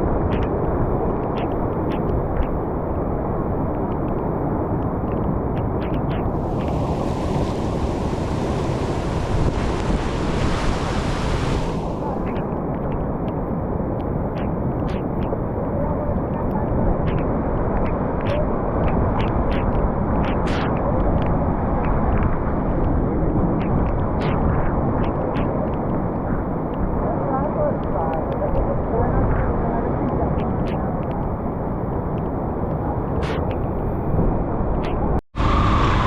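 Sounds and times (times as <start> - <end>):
water rushing through spillway: 6.3 - 12.8.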